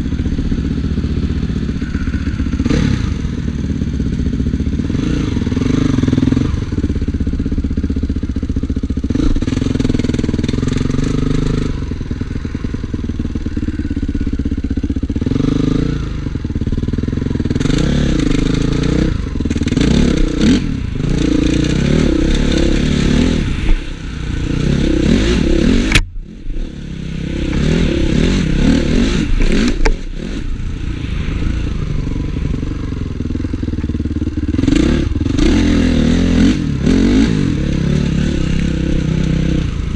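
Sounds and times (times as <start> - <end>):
motocross engine revving: 0.0 - 7.8, 8.8 - 39.9
sharp click: 25.8 - 26.1, 29.4 - 30.1.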